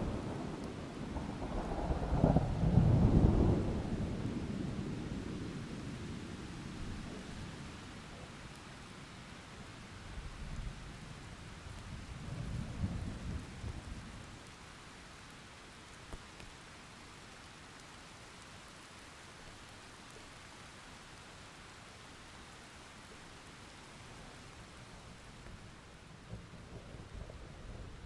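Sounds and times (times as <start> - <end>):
low rumble of thunder: 0.0 - 7.9, 10.2 - 14.5, 25.1 - 28.0
steady rain falling: 0.0 - 28.0.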